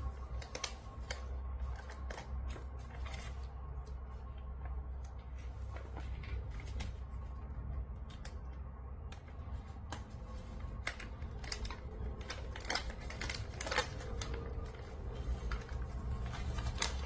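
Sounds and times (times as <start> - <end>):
plastic wrapper crinkling: 0.0 - 3.8, 9.2 - 17.0
low steady hum: 0.0 - 17.0.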